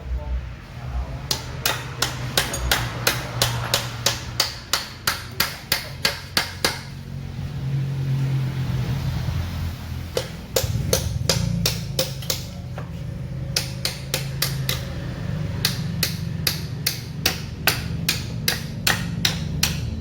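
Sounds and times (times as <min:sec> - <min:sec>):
steady low hum: 0:00.0 - 0:20.0
hammer tapping metal: 0:01.2 - 0:07.0, 0:10.1 - 0:20.0.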